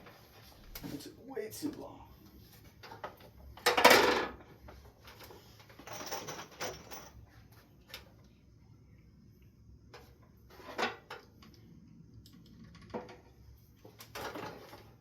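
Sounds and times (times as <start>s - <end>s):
small metal objects rattling: 5.7s - 7.2s.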